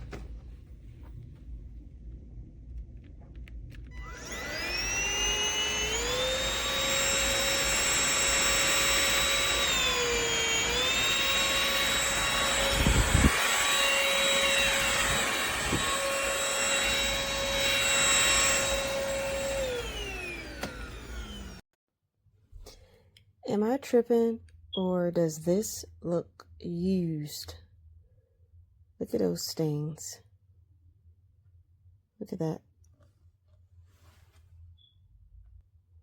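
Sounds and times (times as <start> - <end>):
stick vacuum motor whine: 3.6 - 21.6.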